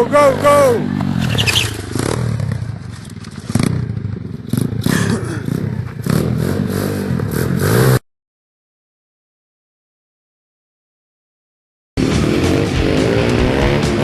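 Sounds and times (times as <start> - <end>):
small motorcycle engine revving: 0.0 - 8.0, 12.0 - 14.0
clatter: 1.0 - 5.1.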